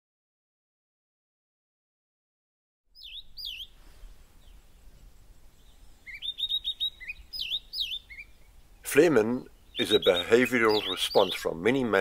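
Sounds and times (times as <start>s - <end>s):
birds whistling and chirping: 3.0s - 4.6s, 5.5s - 11.9s.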